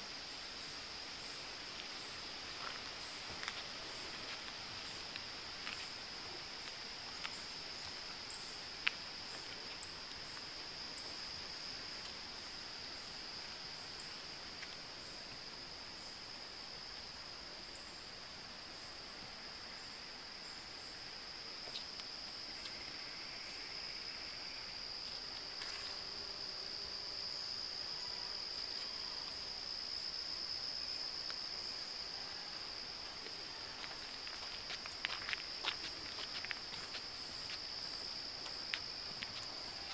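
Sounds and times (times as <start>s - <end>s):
shrill insect chorus: 0.0s - 39.9s
faint ticks: 21.6s - 23.0s.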